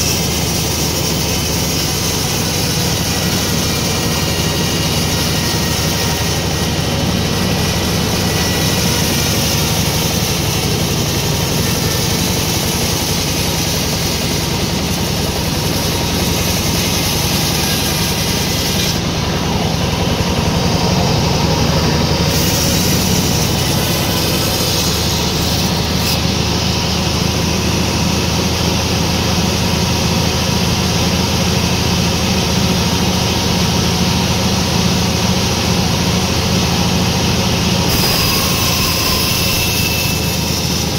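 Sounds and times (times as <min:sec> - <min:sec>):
sawmill machinery droning: 0:00.0 - 0:40.9.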